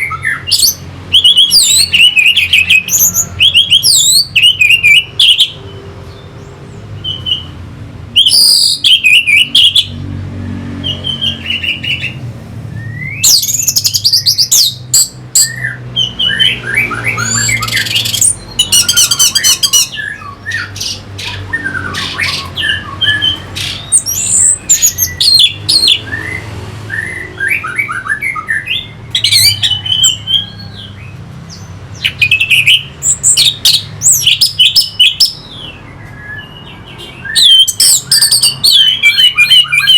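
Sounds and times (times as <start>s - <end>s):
thrush singing: 12.9s - 35.5s.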